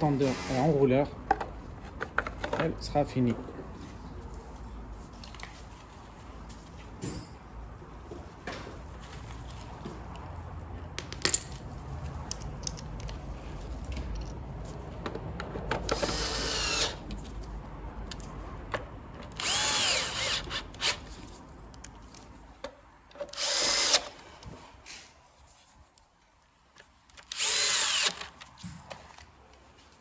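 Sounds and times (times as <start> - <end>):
cordless drill whining: 16.0 - 17.0, 19.4 - 21.0, 23.3 - 24.1, 27.3 - 28.3.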